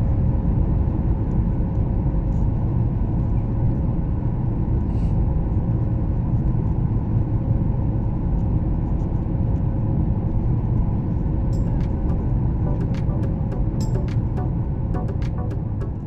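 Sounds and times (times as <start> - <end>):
aircraft engine rumble: 0.0 - 16.0.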